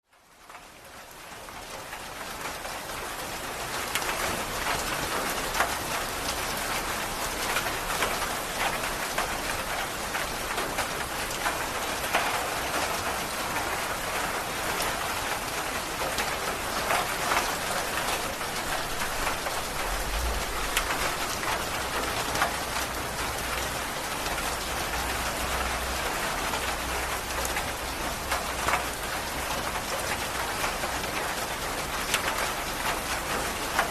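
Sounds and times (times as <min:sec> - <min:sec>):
heavy rain on foliage and stone: 0:00.0 - 0:33.9
low rumble: 0:19.8 - 0:20.8.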